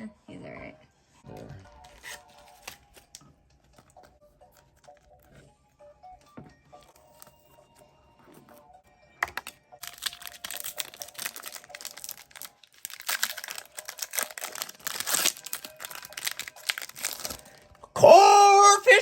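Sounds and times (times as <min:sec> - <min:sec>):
foil wrapper crinkling and tearing: 0:01.8 - 0:03.2, 0:06.8 - 0:07.4, 0:09.2 - 0:17.8.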